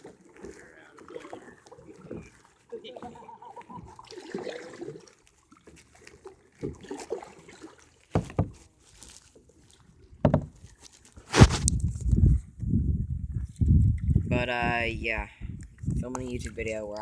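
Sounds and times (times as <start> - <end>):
water trickling and sloshing: 0.0 - 12.4
sharp knocks on kayak: 8.1 - 8.6, 10.2 - 10.6.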